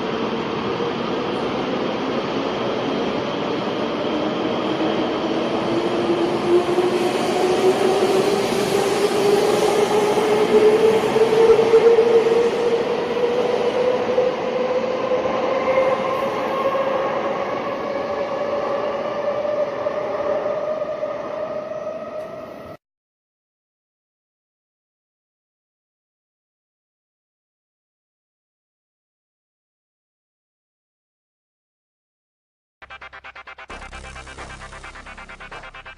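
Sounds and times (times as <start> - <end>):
train rushing noise: 0.0 - 22.8, 32.8 - 35.9.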